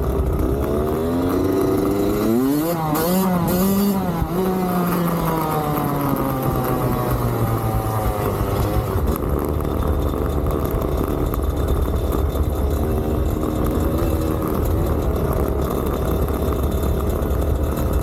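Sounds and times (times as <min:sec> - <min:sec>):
dirt bike engine revving: 0:00.2 - 0:09.6.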